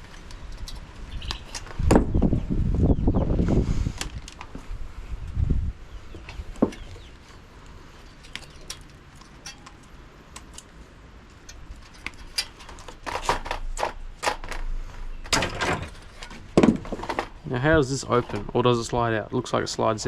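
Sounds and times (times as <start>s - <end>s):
clicks and metal rattles: 8.2s - 17.4s
knocks and scrapes: 11.5s - 18.6s.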